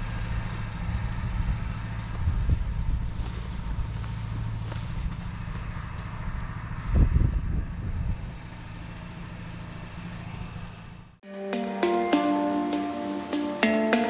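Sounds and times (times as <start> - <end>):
music: 11.2 - 14.0.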